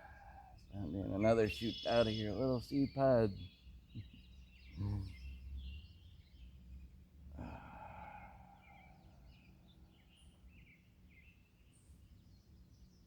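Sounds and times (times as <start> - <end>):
birds chirping faintly: 0.0 - 13.0
person sighing: 4.8 - 5.1, 7.4 - 8.4
breathy exhale: 7.4 - 9.1.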